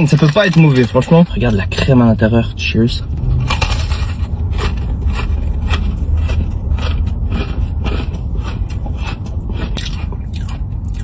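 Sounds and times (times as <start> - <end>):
steady low rumble: 0.0 - 11.0
crunching and chewing cookie: 3.1 - 11.0.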